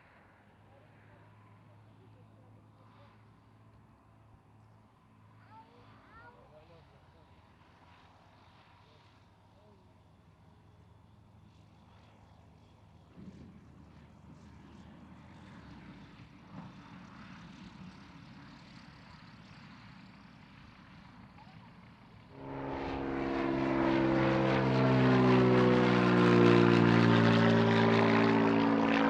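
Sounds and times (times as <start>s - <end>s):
propeller aircraft engine: 0.0s - 29.0s.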